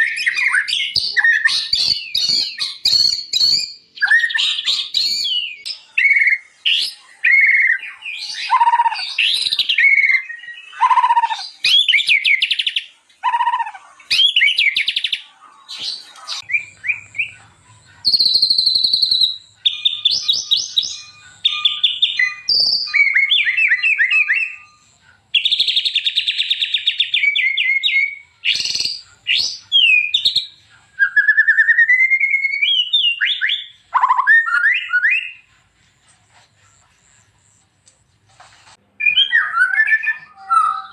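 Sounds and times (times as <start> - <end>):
bird singing varied whistles: 0.0 - 15.1, 18.0 - 35.5.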